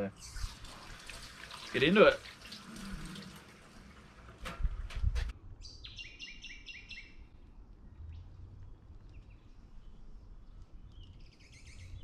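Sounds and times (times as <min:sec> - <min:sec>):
bird chirping: 0:00.1 - 0:00.7, 0:05.6 - 0:08.4, 0:09.0 - 0:12.0.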